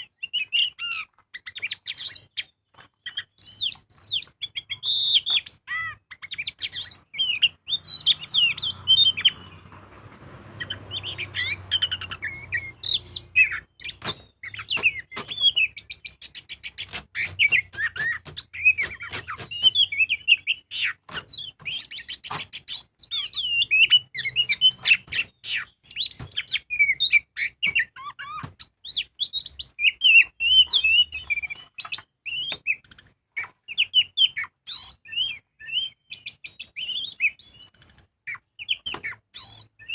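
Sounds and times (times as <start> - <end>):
bird singing whistled phrases: 33.8 - 38.8.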